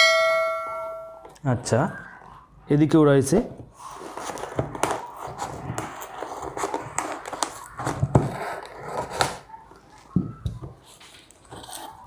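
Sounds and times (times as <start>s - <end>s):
cardboard package scraping and crackling: 3.8s - 9.5s.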